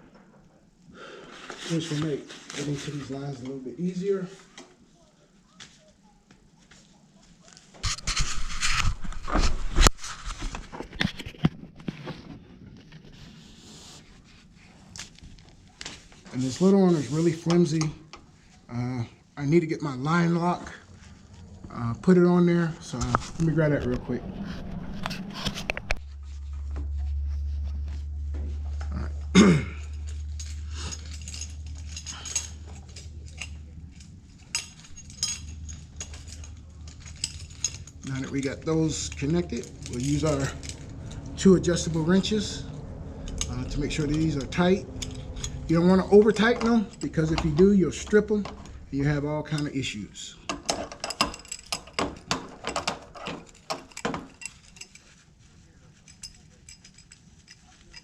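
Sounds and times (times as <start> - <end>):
scraping and rustling: 1.2 - 4.9, 6.6 - 58.0
steady low hum: 14.2 - 58.0
metal parts clinking: 28.5 - 58.0.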